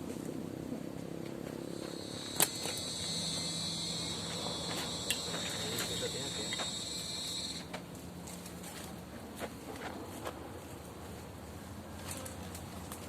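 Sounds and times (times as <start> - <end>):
insect high-pitched call: 1.6 - 7.8
sharp clicks: 2.3 - 7.7.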